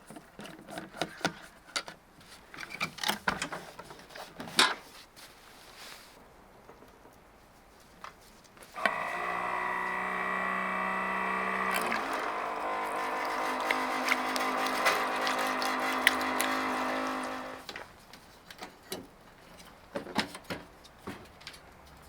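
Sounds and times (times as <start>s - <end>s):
water running into container: 8.8s - 17.7s
electric water pump humming: 8.8s - 17.8s.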